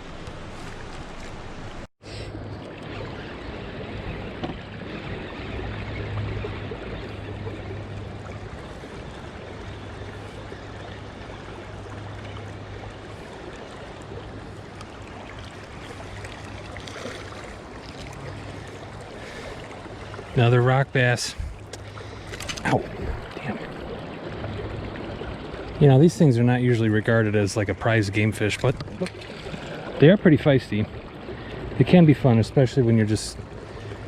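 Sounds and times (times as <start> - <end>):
river water rushing: 4.9 - 30.1.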